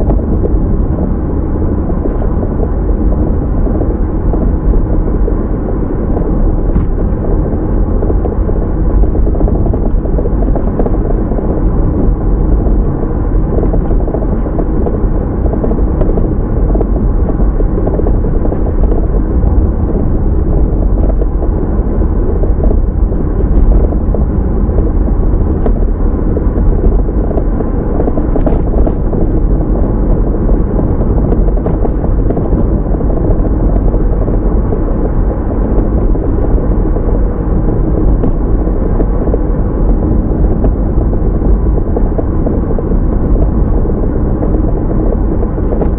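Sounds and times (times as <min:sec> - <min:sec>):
car road and engine rumble: 0:00.0 - 0:45.9.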